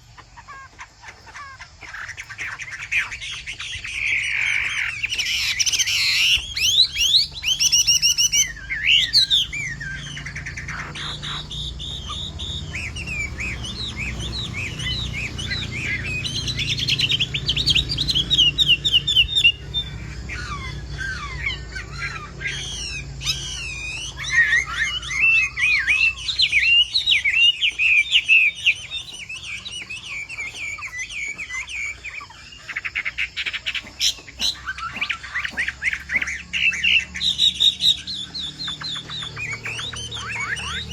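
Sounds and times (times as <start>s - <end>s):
songbird whistling and trilling: 0.0s - 40.9s.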